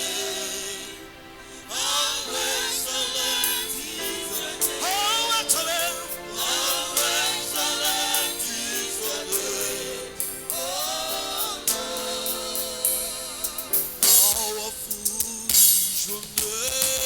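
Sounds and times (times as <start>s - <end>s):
sustained instrumental chords: 0.0s - 14.9s
singers with vibrato: 0.0s - 17.0s
sharp drum or cymbal hits: 5.5s - 17.0s.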